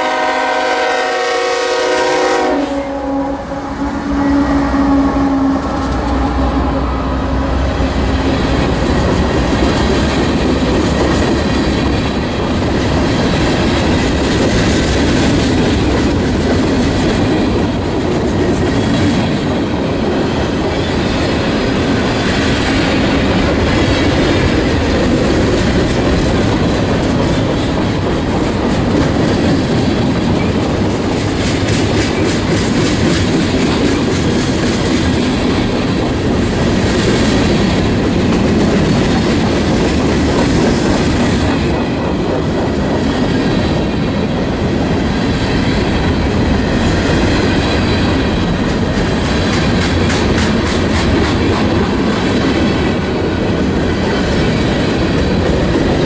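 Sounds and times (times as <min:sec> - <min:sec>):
locomotive engine hum: 0:00.0 - 0:18.6
train wheels rumbling and rattling: 0:00.0 - 0:56.0
clickety-clack over rail joints: 0:05.6 - 0:06.6, 0:07.8 - 0:56.0.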